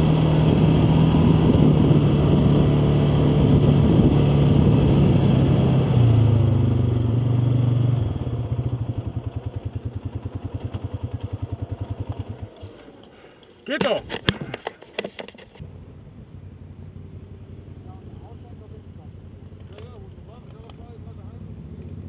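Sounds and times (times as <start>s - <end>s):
atv engine running: 0.0s - 13.5s, 14.2s - 22.0s.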